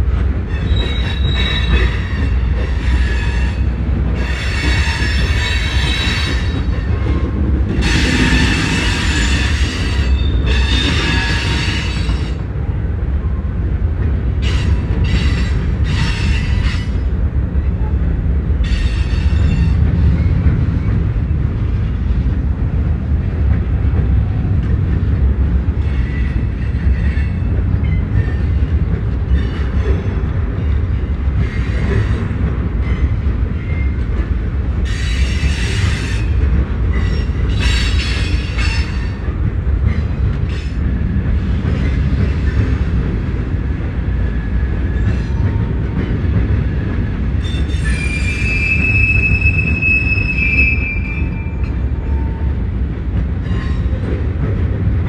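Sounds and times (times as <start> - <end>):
freight train rumble: 0.0 - 55.0
high-pitched wheel squeal: 0.6 - 2.0, 47.4 - 52.4.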